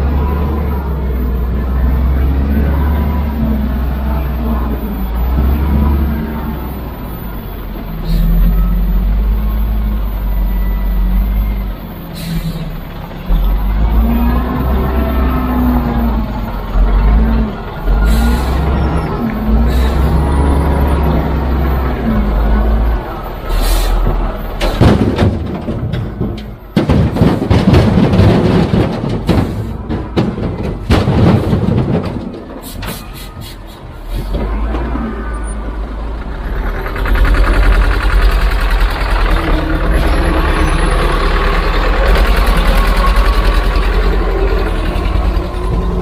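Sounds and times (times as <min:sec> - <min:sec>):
diesel engine running: 0:00.0 - 0:46.0
machinery knocking and clattering: 0:24.1 - 0:33.1, 0:36.2 - 0:46.0.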